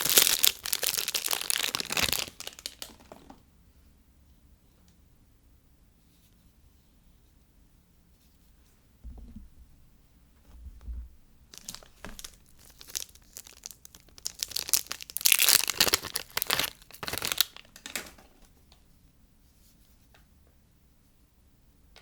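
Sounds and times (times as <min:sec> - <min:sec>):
packaging tearing and crinkling: 0:00.0 - 0:03.3, 0:11.5 - 0:18.2.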